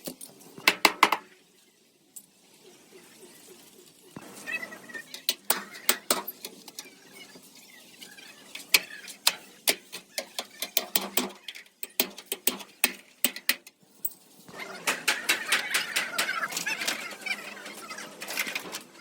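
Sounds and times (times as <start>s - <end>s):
hammer tapping on sheet metal: 9.2s - 13.7s.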